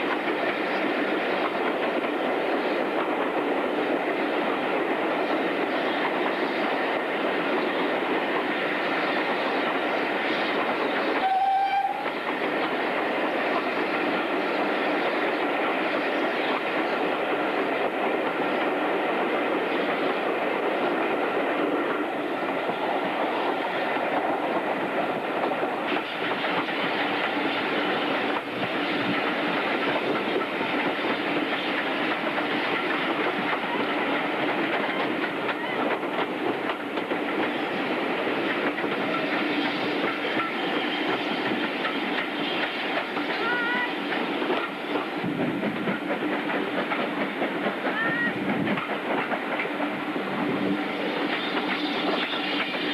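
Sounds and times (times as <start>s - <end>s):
train wheels clattering: 0.0s - 52.9s.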